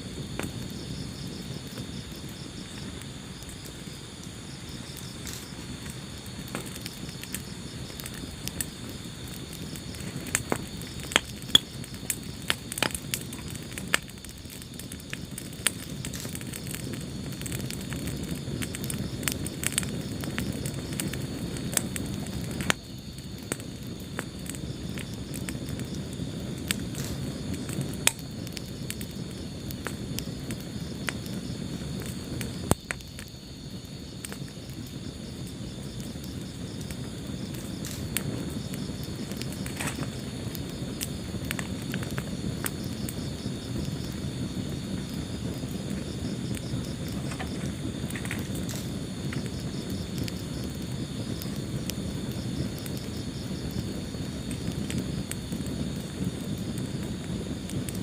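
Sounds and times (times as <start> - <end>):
fire crackles and pops: 0.0 - 58.0
wood fire burning: 0.0 - 58.0.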